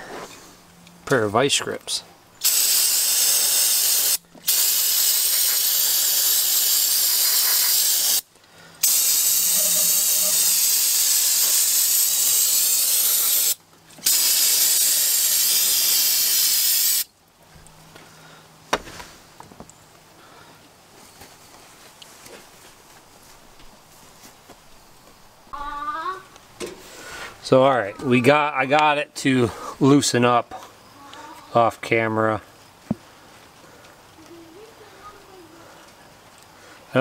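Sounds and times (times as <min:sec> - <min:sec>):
hiss of escaping gas: 0:02.4 - 0:17.1.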